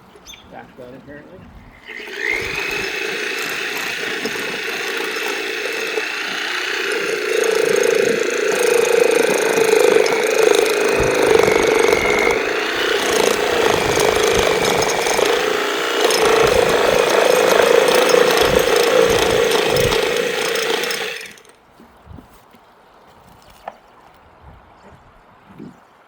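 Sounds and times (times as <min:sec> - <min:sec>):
power tool cutting plastic pipe: 0:01.7 - 0:21.6.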